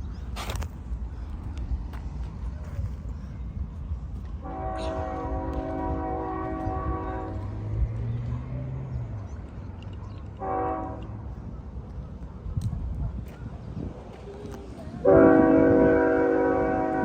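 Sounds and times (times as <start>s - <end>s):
locomotive air horn: 4.4s - 7.7s, 10.4s - 11.2s, 15.0s - 17.0s.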